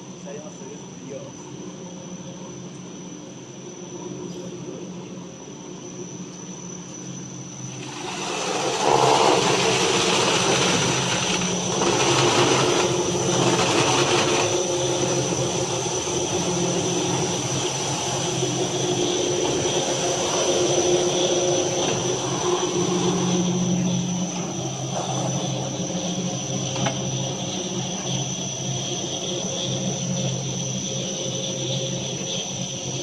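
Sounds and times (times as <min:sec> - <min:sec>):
sanding machine motor whine: 0:05.9 - 0:33.0
sanding brushes rushing: 0:07.7 - 0:23.4.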